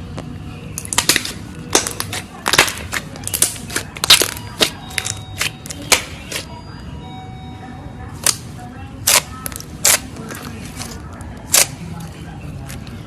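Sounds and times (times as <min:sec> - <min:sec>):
crisp cracks and crunches: 0:00.8 - 0:06.4.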